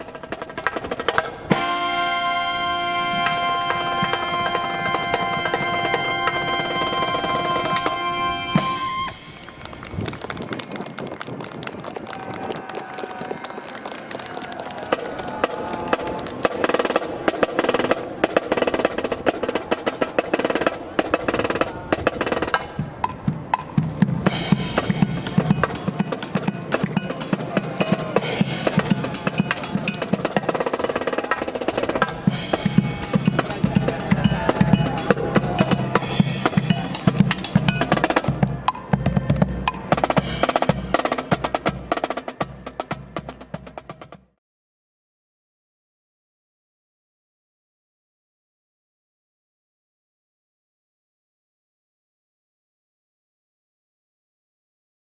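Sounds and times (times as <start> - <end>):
snare drums: 0.0 - 9.7, 14.8 - 44.3
marching brass band playing: 0.0 - 9.8, 14.9 - 44.2.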